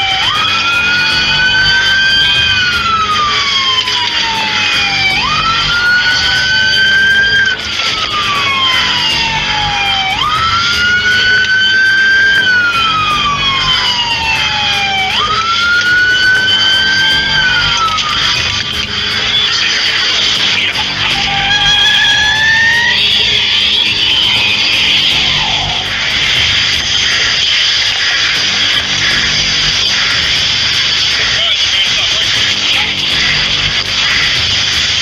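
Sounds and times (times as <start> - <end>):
police siren wailing: 0.0 - 35.0.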